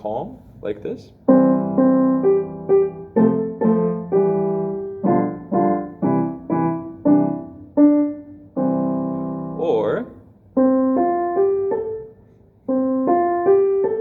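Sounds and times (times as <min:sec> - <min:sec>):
cheerful piano tune: 0:01.2 - 0:14.0.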